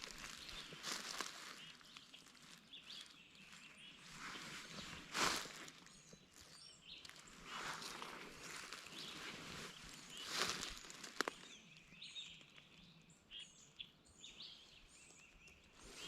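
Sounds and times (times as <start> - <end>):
footsteps in dry leaves: 0.0 - 11.7
faint songbird chirps: 0.0 - 16.0.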